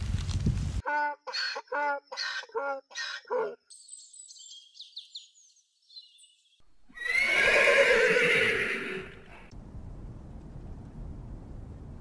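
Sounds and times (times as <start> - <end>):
horse neighing loudly: 6.9 - 9.5.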